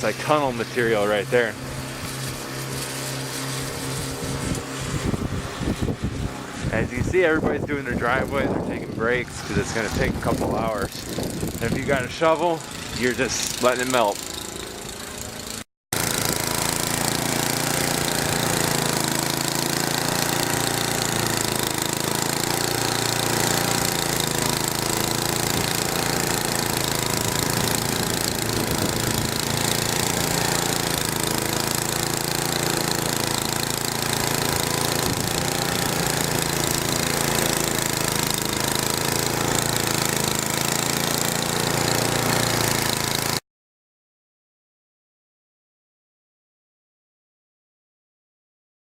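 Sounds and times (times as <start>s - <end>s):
snow blower engine droning: 0.0s - 43.4s.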